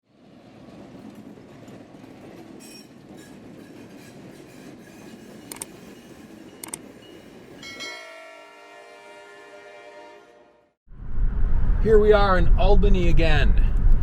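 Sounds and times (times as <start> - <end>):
train wheels rumbling on track: 0.1 - 8.6.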